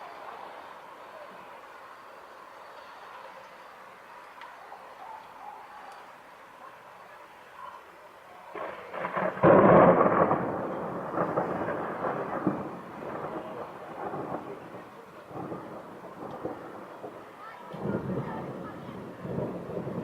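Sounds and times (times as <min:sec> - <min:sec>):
thunder clap and rumbling: 0:08.5 - 0:20.0.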